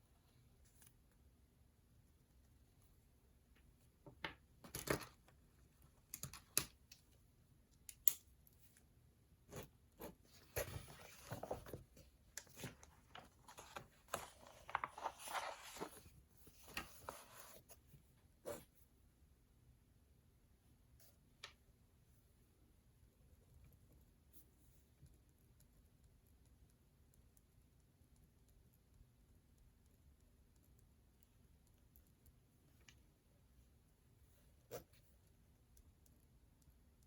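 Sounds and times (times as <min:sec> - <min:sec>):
paper rustling: 0:09.6 - 0:17.8.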